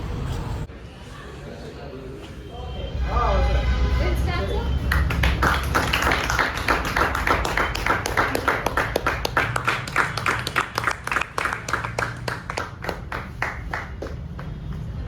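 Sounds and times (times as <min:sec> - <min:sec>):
people clapping: 0:04.8 - 0:15.0.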